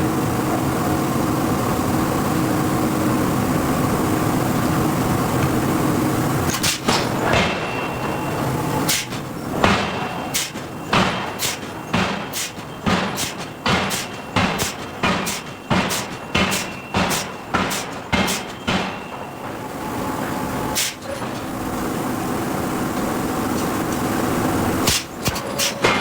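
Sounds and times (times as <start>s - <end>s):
forging hammer striking steel: 6.5s - 19.6s, 24.8s - 26.0s.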